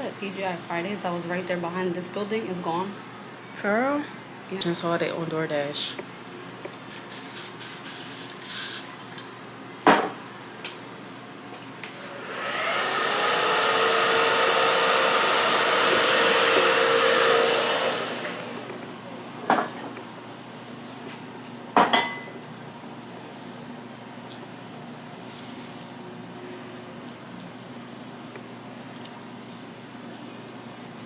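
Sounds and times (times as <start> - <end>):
blow dryer whooshing: 11.9 - 19.1.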